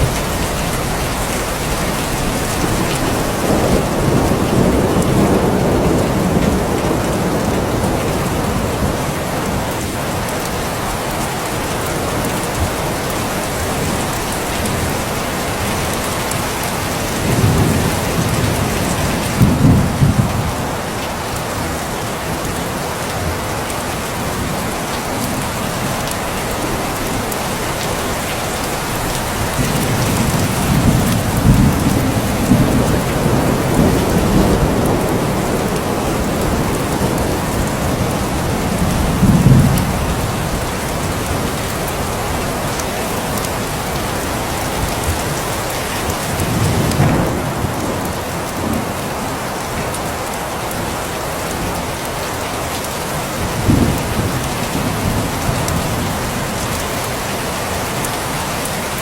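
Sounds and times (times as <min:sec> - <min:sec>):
thunder rolling: 0:00.0 - 0:09.6, 0:28.9 - 0:42.8, 0:46.1 - 0:49.0, 0:53.4 - 0:56.4
rain falling: 0:00.0 - 0:59.0.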